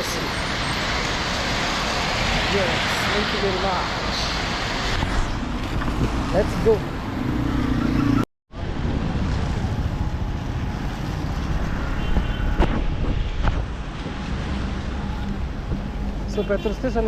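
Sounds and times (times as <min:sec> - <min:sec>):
road traffic passing: 0:00.0 - 0:17.0
wind buffeting microphone: 0:08.7 - 0:16.1.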